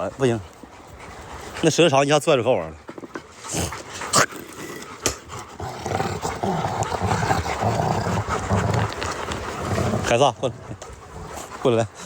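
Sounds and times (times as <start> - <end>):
large dog growling: 3.4 - 12.0.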